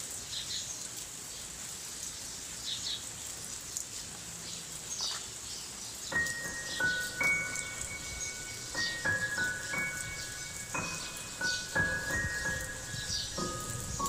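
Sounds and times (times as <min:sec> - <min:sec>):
steady rain: 0:00.0 - 0:14.0
birds chirping: 0:04.4 - 0:14.0
high piano note ringing: 0:06.2 - 0:14.0.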